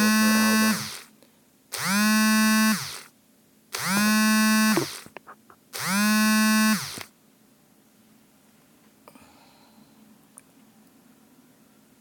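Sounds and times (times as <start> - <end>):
mobile phone vibrating: 0.0 - 1.0, 1.8 - 3.1, 3.8 - 5.1, 5.8 - 7.0.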